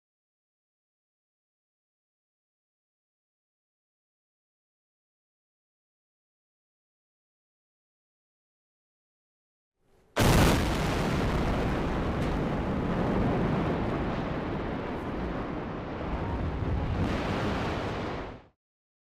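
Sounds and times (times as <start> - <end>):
heavy rumble of collapsing structure: 10.2 - 18.5
explosion blast: 10.2 - 18.6.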